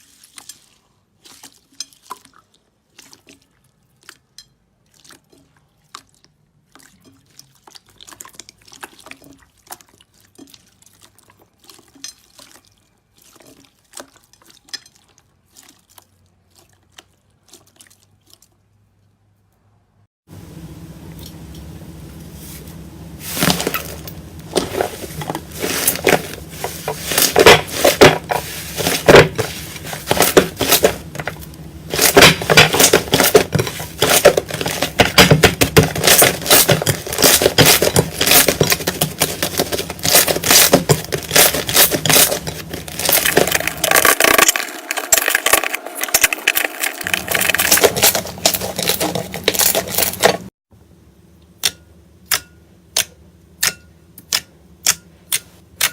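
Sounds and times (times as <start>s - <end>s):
soap crackling and crunching: 24.4s - 50.5s.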